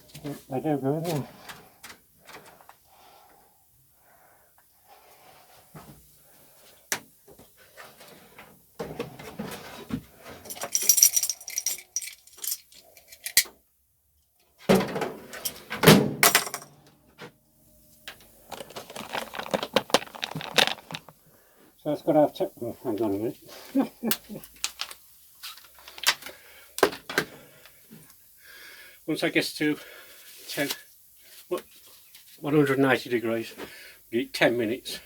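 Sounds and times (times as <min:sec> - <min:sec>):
small metal parts rattling: 0:10.4 - 0:13.5, 0:18.5 - 0:21.2.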